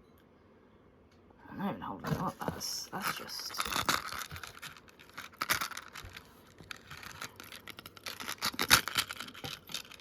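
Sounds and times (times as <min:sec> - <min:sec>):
packaging rustling and scraping: 0:02.0 - 0:10.0.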